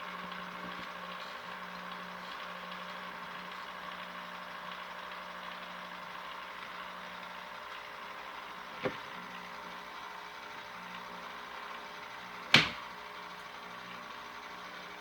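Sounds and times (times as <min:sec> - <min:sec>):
ice cream maker motor running: 0:00.0 - 0:15.0
sharp knock: 0:12.5 - 0:12.8.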